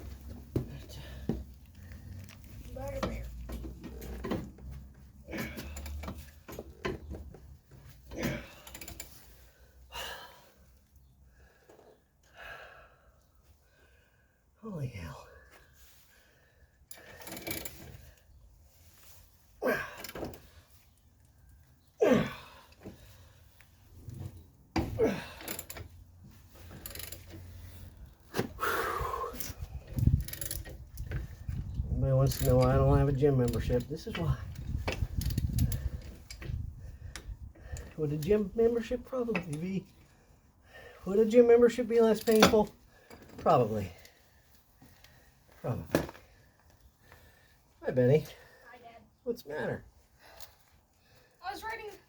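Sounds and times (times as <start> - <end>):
man grunting with effort: 19.6 - 20.1, 22.0 - 22.6, 24.9 - 25.4
tools clunking and scraping metal: 42.2 - 43.4.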